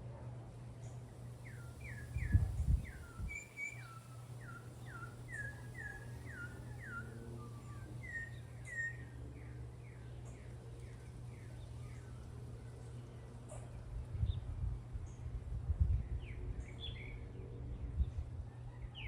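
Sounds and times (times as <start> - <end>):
bird singing whistled notes: 1.4 - 10.0.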